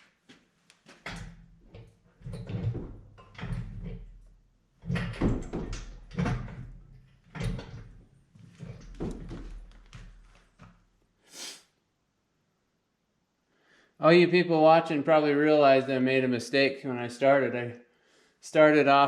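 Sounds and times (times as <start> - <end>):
metal clunks and scraping: 1.0 - 10.2.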